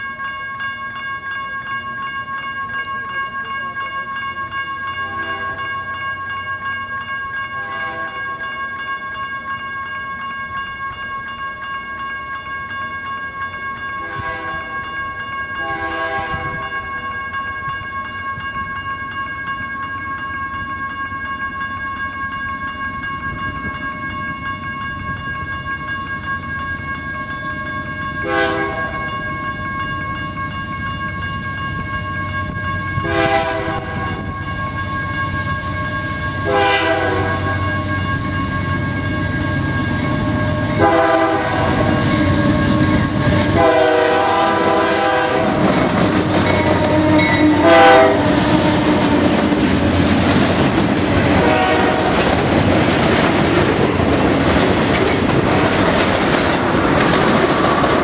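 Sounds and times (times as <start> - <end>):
locomotive horn blasts: 14.0 - 14.7, 15.6 - 16.6, 28.2 - 29.0, 33.0 - 34.2, 36.4 - 37.6, 40.8 - 45.7, 46.5 - 49.3, 51.3 - 52.2
train rumble: 27.2 - 58.0
wheels clickety-clack on rail joints: 41.6 - 58.0.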